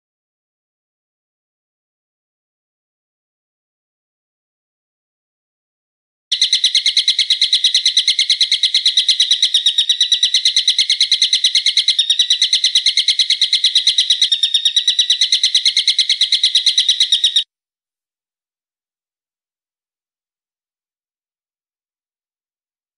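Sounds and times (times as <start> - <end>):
bird chattering call: 6.3 - 17.4.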